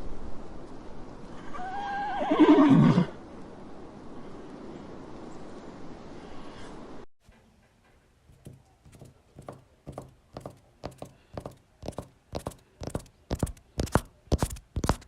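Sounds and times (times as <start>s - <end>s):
regular short knocks: 7.2s - 15.0s.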